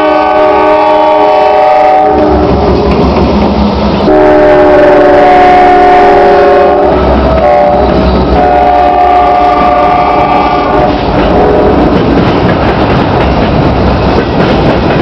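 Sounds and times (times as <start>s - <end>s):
locomotive air horn chord: 0.0s - 2.5s, 4.0s - 11.9s
train rumbling past: 0.0s - 15.0s.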